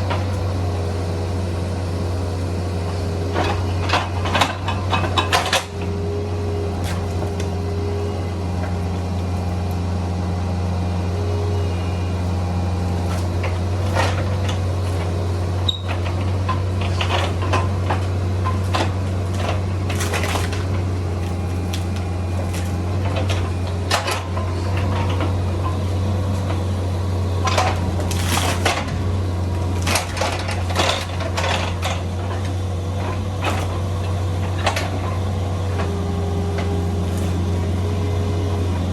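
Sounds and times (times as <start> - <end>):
excavator diesel engine running: 0.0 - 38.9
clanks and knocks: 3.3 - 5.9, 27.4 - 37.4.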